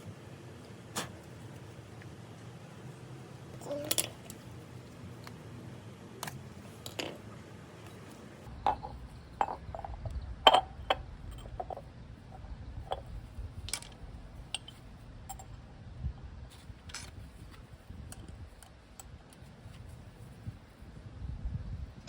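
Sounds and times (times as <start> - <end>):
hand tools and metal parts clinking: 3.6 - 4.5, 8.5 - 15.6.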